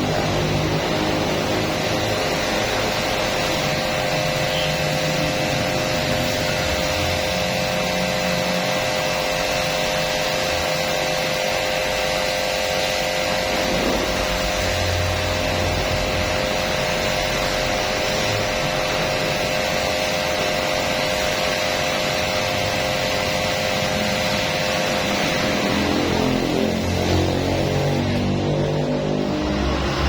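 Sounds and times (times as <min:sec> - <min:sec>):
machine motor humming: 0:00.0 - 0:30.0.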